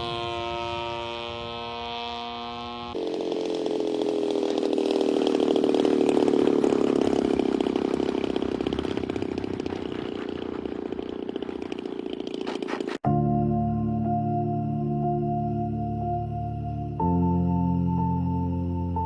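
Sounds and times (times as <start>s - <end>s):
small engine running: 0.0s - 13.1s.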